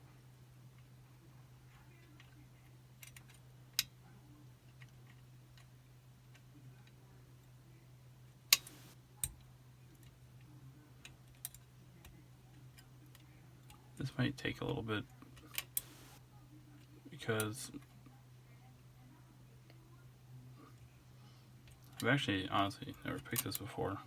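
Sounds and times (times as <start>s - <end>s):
lock-picking tools clicking: 8.5s - 9.0s, 15.8s - 16.2s
steady low hum: 8.6s - 9.0s, 15.8s - 16.2s.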